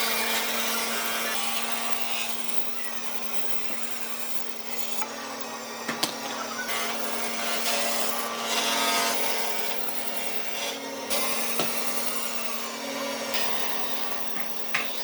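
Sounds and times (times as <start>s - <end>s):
power tool sanding wood: 0.0s - 15.0s.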